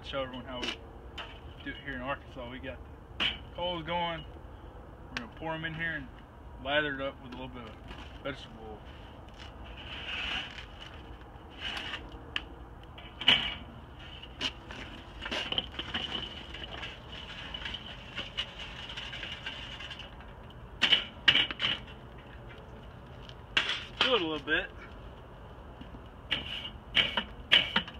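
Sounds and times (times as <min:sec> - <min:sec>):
coals being poured: 0:13.9 - 0:20.6.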